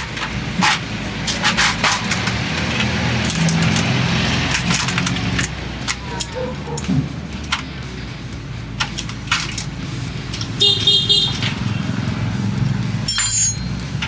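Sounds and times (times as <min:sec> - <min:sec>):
low vehicle engine hum: 0:00.0 - 0:14.0
metallic clinks of hand tools: 0:13.1 - 0:14.0.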